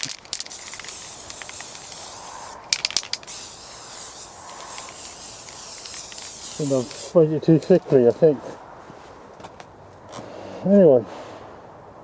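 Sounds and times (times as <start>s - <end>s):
aerosol can spraying: 0.3s - 7.2s.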